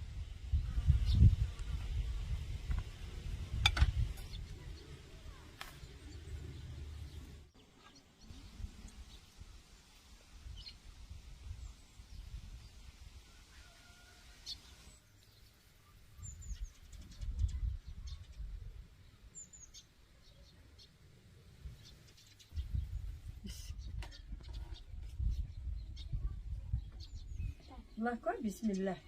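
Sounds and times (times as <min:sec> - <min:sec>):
faint bird chirps: 0:13.3 - 0:29.0.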